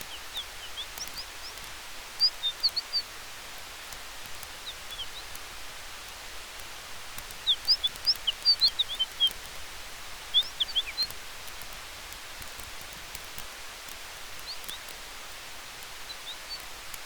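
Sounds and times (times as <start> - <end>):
bird chirping: 0.0 - 3.1, 4.6 - 5.4, 7.4 - 9.5, 10.2 - 11.2, 14.4 - 14.9, 16.0 - 16.8
campfire crackling: 0.0 - 17.0.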